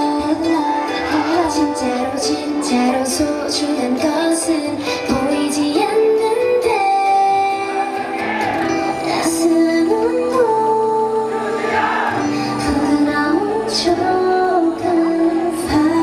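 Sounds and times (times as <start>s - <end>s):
women singing held notes: 5.1s - 16.0s.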